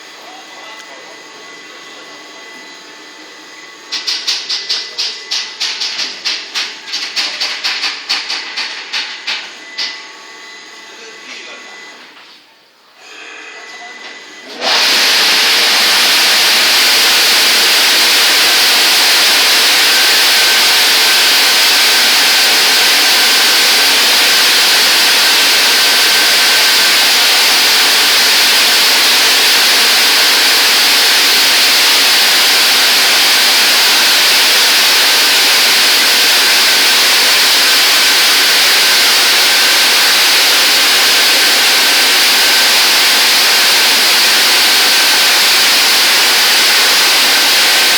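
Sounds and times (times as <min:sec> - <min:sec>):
high-pressure water spraying: 0:14.7 - 0:47.9.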